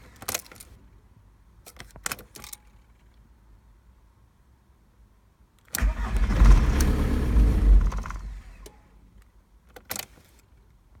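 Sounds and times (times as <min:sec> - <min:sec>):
starter motor cranking engine: 0:05.8 - 0:08.6.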